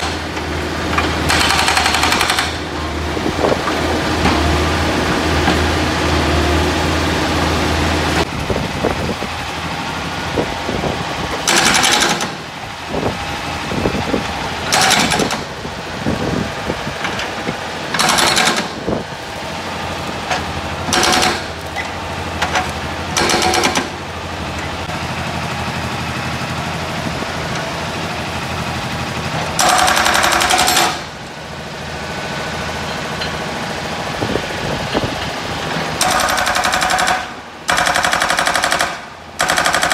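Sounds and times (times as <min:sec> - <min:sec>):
hydraulic breaker hammering metal: 0:00.0 - 0:02.7, 0:11.4 - 0:12.4, 0:14.6 - 0:15.5, 0:17.9 - 0:19.0, 0:20.8 - 0:24.0, 0:29.6 - 0:31.1, 0:36.0 - 0:39.9
diesel engine running: 0:00.0 - 0:39.9.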